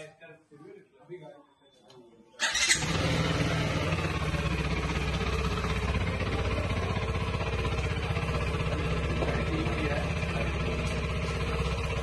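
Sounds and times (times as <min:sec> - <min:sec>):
motorcycle engine idling: 0:02.4 - 0:12.0.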